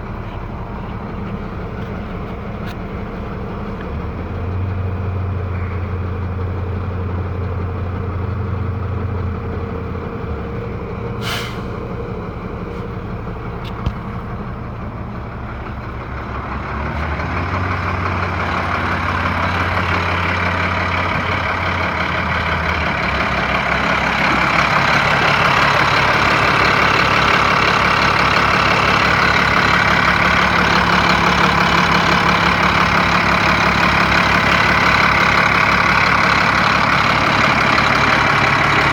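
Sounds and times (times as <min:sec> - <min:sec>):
diesel truck engine running: 0:00.0 - 0:38.9
short air hiss: 0:11.2 - 0:11.8.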